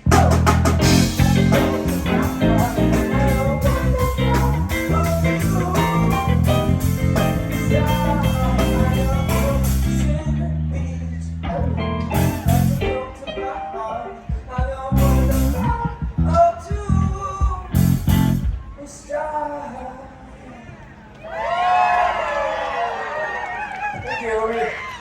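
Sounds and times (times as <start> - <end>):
live blues-rock band playing: 0.0 - 10.3, 11.5 - 13.6, 14.2 - 16.2, 17.0 - 18.7.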